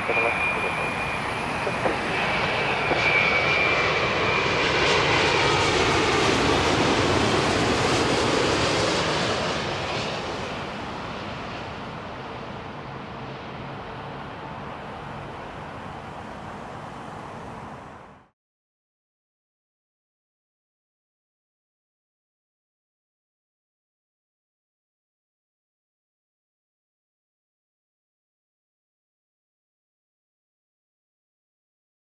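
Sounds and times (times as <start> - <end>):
jet airliner passing by: 0.0 - 18.3.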